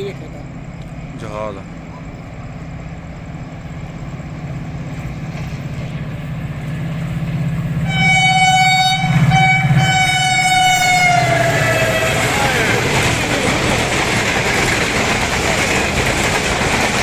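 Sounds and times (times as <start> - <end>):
diesel locomotive rumble: 0.0 - 17.0
train horn blast: 7.8 - 12.6.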